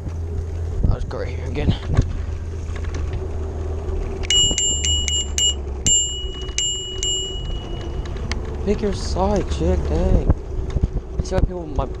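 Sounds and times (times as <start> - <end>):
wind rumble: 0.0 - 12.0
steady hum: 2.0 - 8.4
bicycle bell dinging: 4.3 - 8.2.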